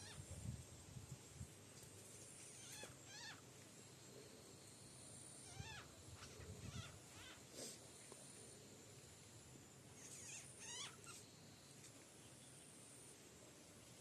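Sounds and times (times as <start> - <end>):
short chirping animal calls: 2.5 - 3.4, 5.4 - 7.7, 10.0 - 11.3.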